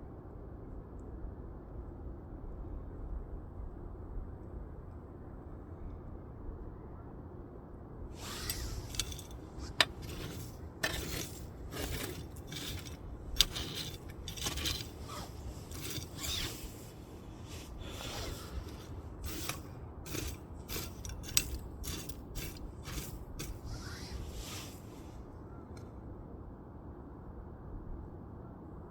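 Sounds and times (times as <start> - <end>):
short hisses: 12.3 - 21.4, 22.4 - 25.3.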